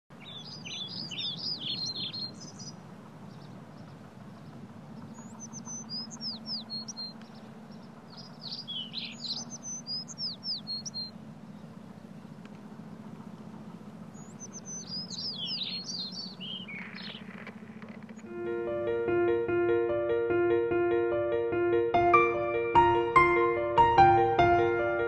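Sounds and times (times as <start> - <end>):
low steady hum: 0.1 - 19.7
songbird singing: 0.1 - 20.0.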